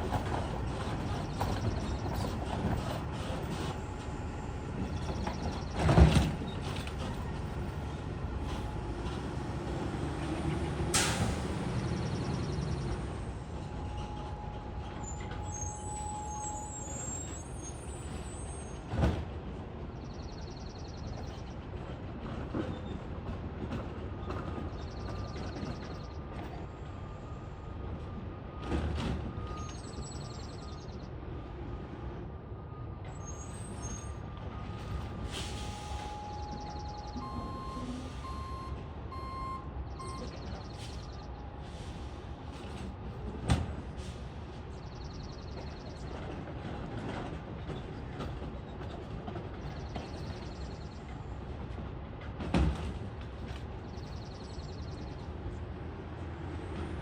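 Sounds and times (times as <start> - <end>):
garbage truck running: 0.0 - 19.1
air brake hiss: 10.9 - 11.6, 35.3 - 36.2, 40.8 - 42.2.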